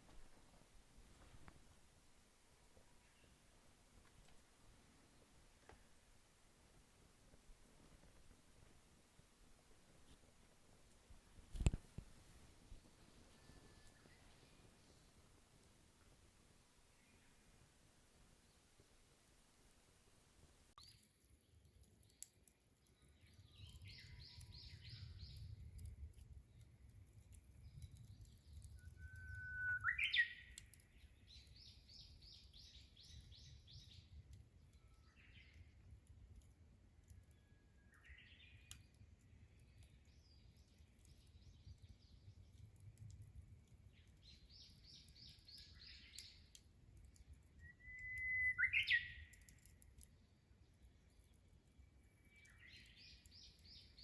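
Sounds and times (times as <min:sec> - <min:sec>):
warbler whistling song: 0:13.3 - 0:15.1, 0:23.4 - 0:25.4, 0:28.4 - 0:34.0, 0:44.2 - 0:46.4, 0:47.6 - 0:49.4, 0:52.1 - 0:54.0.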